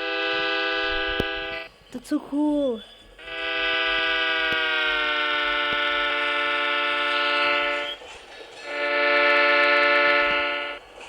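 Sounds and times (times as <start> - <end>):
train horn blast: 0.0 - 1.7, 3.2 - 11.0.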